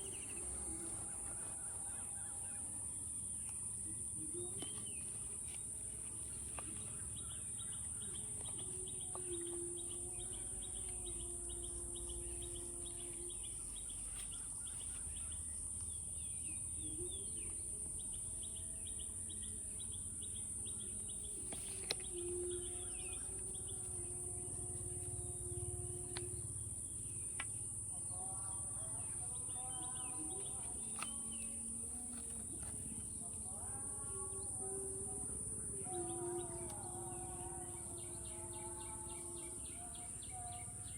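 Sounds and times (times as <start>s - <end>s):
birds chirping: 0.0s - 40.9s
high-pitched insect drone: 22.0s - 32.2s.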